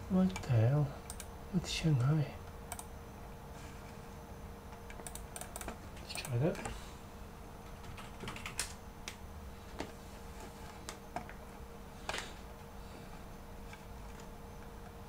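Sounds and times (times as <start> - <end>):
faint steady hum: 0.0 - 15.0
computer mouse clicks: 1.1 - 1.3, 2.7 - 2.9, 4.8 - 6.8.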